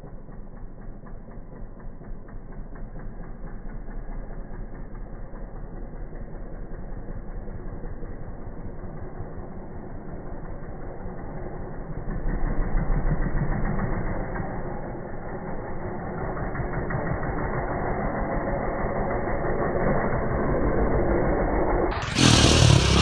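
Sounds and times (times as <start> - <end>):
dirt bike engine running: 0.0 - 23.0.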